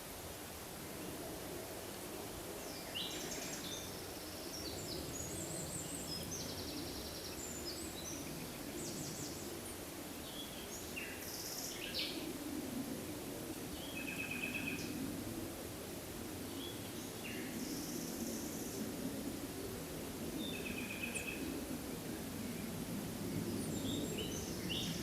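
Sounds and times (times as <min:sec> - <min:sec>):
songbirds singing: 0:02.6 - 0:12.3, 0:23.3 - 0:25.0.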